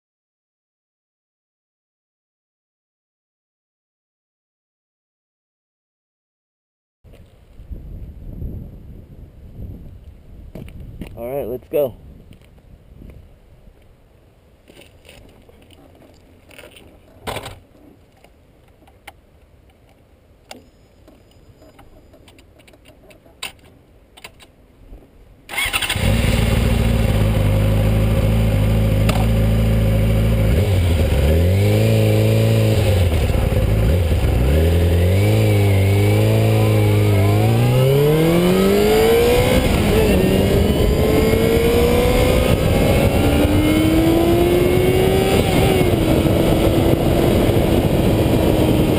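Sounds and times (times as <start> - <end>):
motorcycle engine revving: 25.5 - 48.9.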